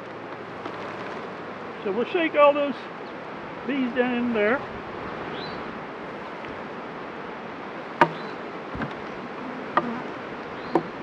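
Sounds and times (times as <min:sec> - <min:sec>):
bees buzzing: 0:07.9 - 0:11.0
sharp knocks: 0:08.0 - 0:09.0, 0:10.7 - 0:11.0.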